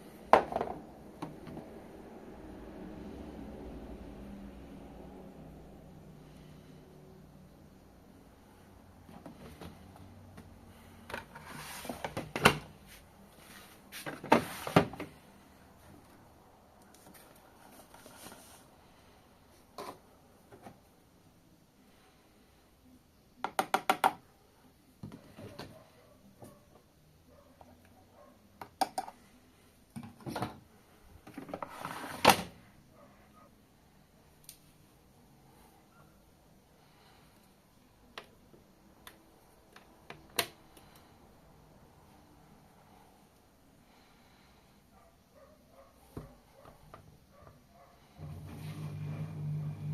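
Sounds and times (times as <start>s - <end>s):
sliding rustling sounds: 11.2s - 15.2s, 17.0s - 18.8s, 31.3s - 32.6s, 48.0s - 49.9s.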